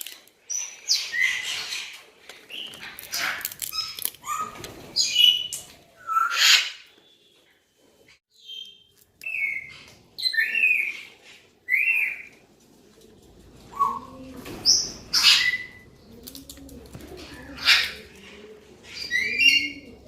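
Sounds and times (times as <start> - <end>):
parrots calling: 13.8 - 15.9, 17.2 - 18.2.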